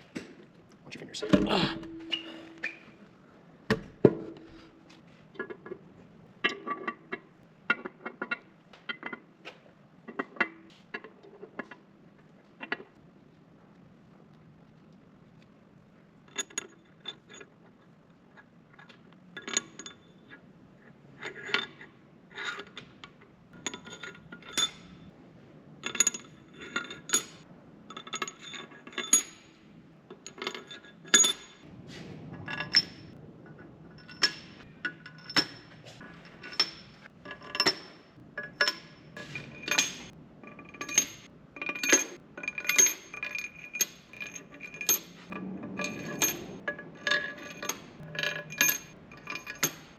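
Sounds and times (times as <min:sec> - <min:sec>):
metal tools and bolts clinking: 0:01.2 - 0:03.0, 0:16.3 - 0:17.6, 0:18.8 - 0:20.4, 0:21.2 - 0:25.1, 0:25.8 - 0:31.7, 0:32.3 - 0:49.9.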